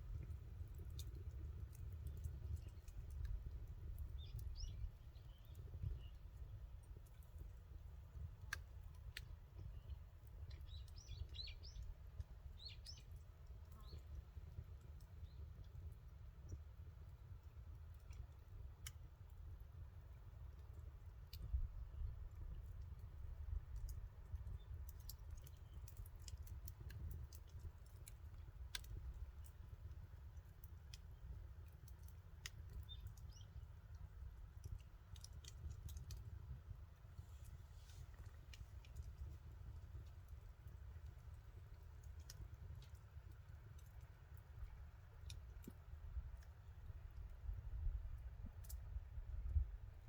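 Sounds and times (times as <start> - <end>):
campfire crackling and popping: 0.0 - 50.0
small bird chirping: 4.0 - 6.5, 9.7 - 11.9, 32.9 - 33.6.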